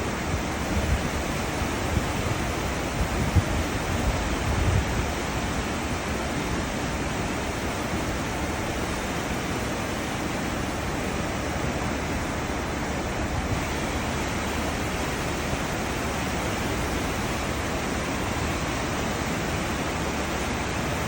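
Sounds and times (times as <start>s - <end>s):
ship wake rushing water: 0.0s - 21.0s.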